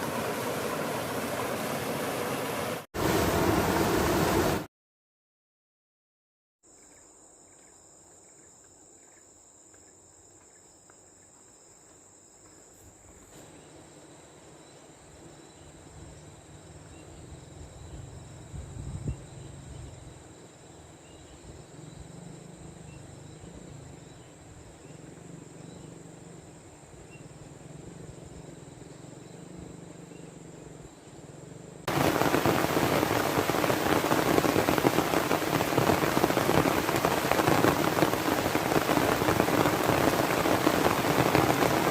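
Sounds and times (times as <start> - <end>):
heavy rain: 0.0 - 4.7, 31.9 - 41.9
low steady rushing: 0.0 - 4.7
insects chirping: 6.7 - 41.9.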